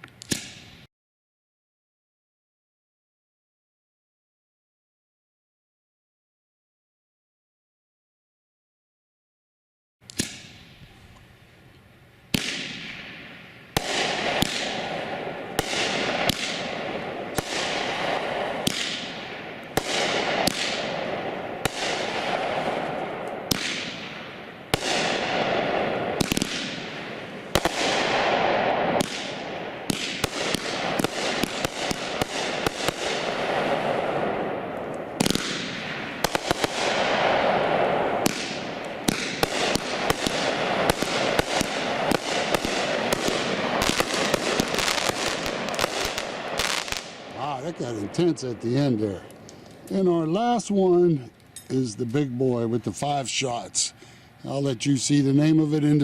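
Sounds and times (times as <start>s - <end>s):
firework shots with hiss: 0.0s - 0.9s, 10.0s - 11.0s, 12.3s - 50.6s.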